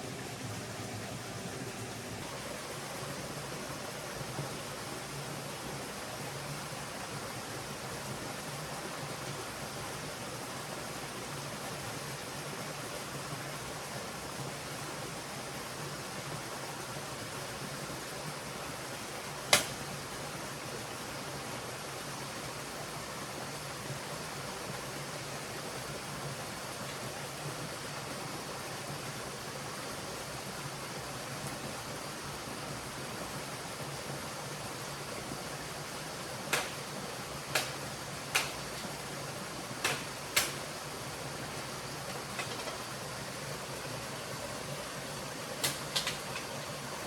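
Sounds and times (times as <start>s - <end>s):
flowing stream: 0.0s - 47.0s
sharp clicks: 37.5s - 38.7s, 39.8s - 40.6s.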